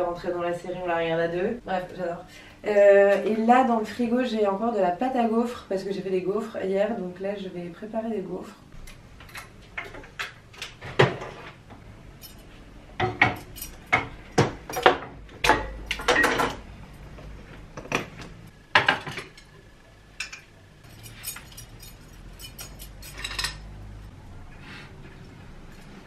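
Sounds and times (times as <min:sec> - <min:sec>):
cookware clattering: 0:12.2 - 0:16.6, 0:20.2 - 0:24.0.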